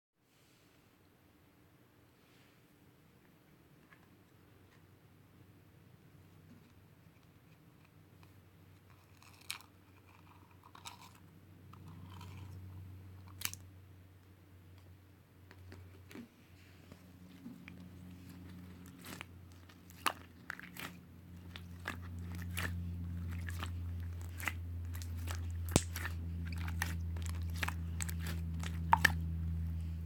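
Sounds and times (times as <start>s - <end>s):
low steady hum: 0.6s - 30.0s
crunching bites: 17.7s - 29.9s.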